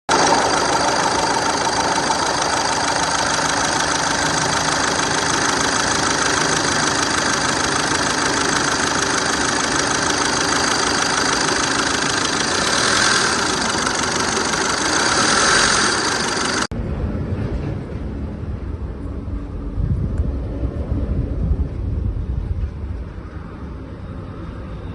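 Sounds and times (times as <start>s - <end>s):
car engine idling: 0.1s - 16.7s
low rumble: 16.6s - 23.8s.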